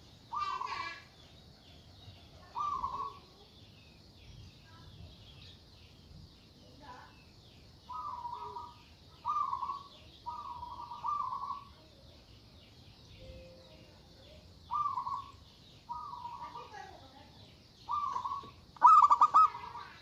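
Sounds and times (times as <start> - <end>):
faint high bird chirps: 0.0 - 20.0
dove cooing: 0.3 - 1.0, 2.4 - 3.3, 7.9 - 11.8, 14.7 - 16.8, 17.9 - 20.0.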